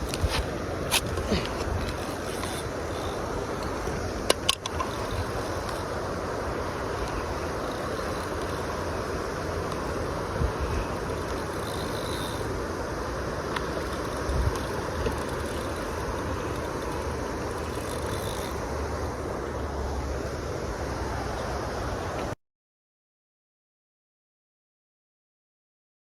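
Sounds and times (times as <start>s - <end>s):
wind gusting on microphone: 0.0s - 19.8s
steady rushing noise: 0.0s - 22.4s.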